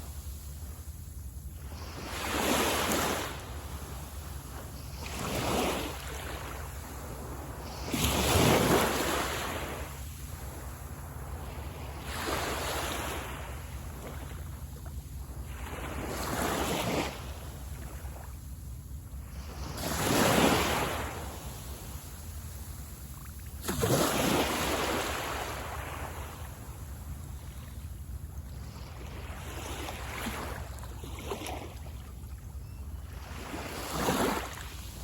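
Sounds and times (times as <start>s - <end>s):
sea waves washing on beach: 0.0s - 18.3s, 19.2s - 27.8s.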